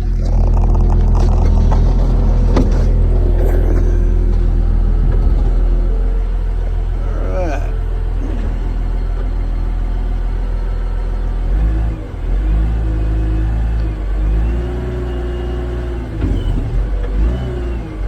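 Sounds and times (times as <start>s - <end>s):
wheel loader diesel engine: 0.0s - 18.0s.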